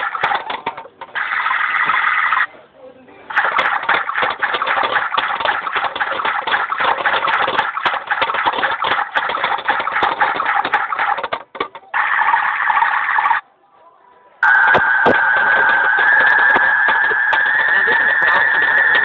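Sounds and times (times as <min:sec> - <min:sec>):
toy washing machine clicks: 0:00.0 - 0:01.2, 0:03.3 - 0:11.9
toy washing machine churning: 0:00.0 - 0:02.5, 0:03.2 - 0:13.4, 0:14.4 - 0:19.0
toy washing machine swishing: 0:00.0 - 0:02.5, 0:03.3 - 0:13.4, 0:14.4 - 0:19.0.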